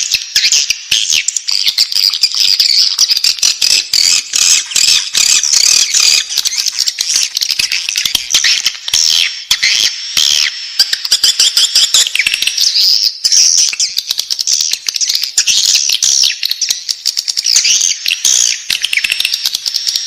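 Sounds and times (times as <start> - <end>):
bird chicks twittering: 0.0 - 20.0
rapid sharp clicks: 3.0 - 9.0, 13.7 - 16.0, 16.6 - 20.0.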